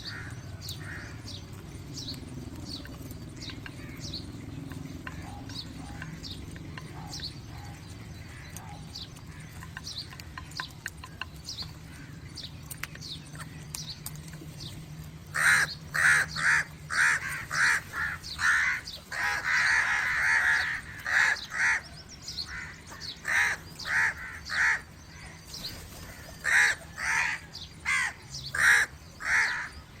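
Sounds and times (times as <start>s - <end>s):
crows cawing: 0.0s - 1.3s, 3.6s - 4.1s, 5.0s - 9.8s, 15.3s - 25.4s, 26.1s - 29.8s.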